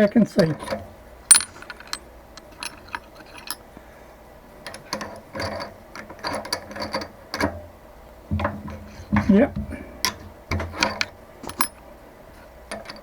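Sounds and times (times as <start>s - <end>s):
metallic clicks of tools: 0.0s - 3.6s, 4.6s - 7.6s, 10.0s - 11.8s.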